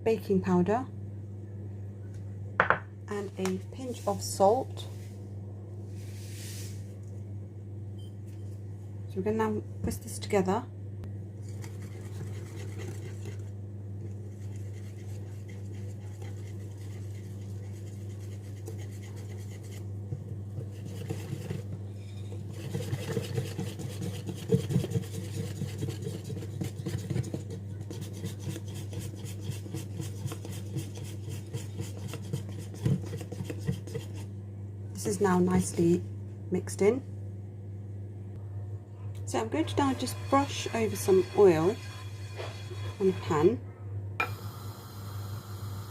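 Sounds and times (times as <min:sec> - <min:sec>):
steady low hum: 0:00.0 - 0:45.9
whisk scraping in a bowl: 0:11.4 - 0:34.3, 0:39.4 - 0:43.6
whisk tapping against bowl: 0:22.5 - 0:34.2.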